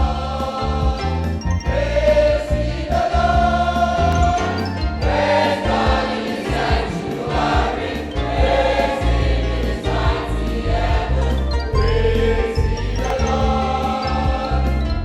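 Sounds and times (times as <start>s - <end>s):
choir singing: 0.0s - 15.0s
instrumental bass accompaniment: 0.0s - 15.0s.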